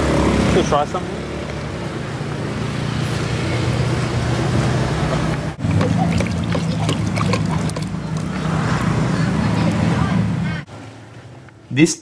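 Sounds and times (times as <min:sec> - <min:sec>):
street traffic: 0:00.0 - 0:12.0
vehicle engine humming: 0:03.3 - 0:10.6.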